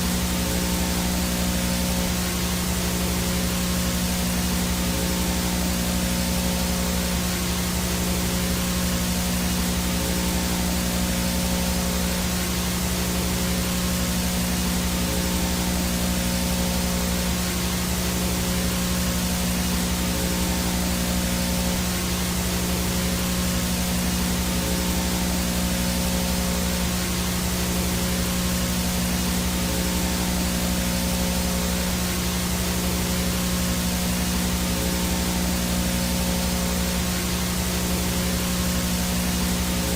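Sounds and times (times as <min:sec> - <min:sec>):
static hiss: 0:00.0 - 0:39.9
steady low hum: 0:00.0 - 0:39.9.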